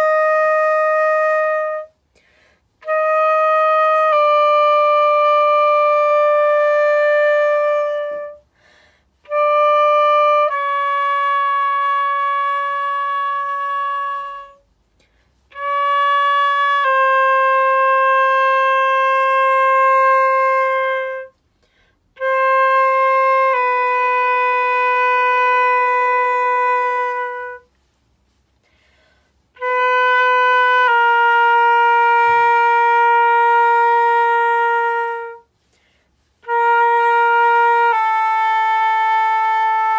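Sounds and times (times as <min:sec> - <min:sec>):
flute playing long tones: 0:00.0 - 0:39.9.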